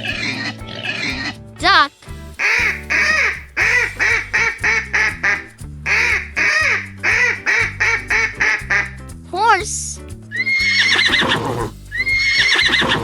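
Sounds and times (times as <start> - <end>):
cheerful background music: 0.0 - 13.0
duck quacking: 2.4 - 9.0.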